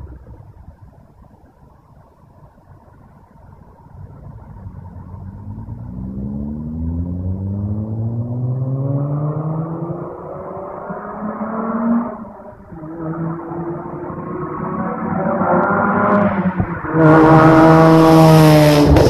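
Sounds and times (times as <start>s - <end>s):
rotary engine revving: 12.8s - 19.0s.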